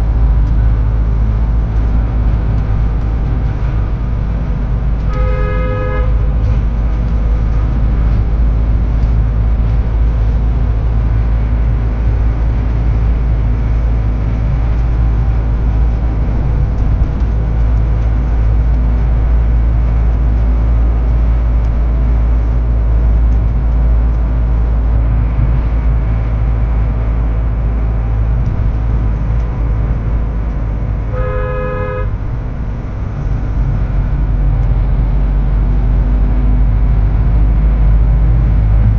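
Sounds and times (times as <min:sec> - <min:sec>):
low rumble of road vehicles: 0:00.0 - 0:38.9
vehicle horn honking: 0:05.1 - 0:06.3, 0:31.1 - 0:32.2.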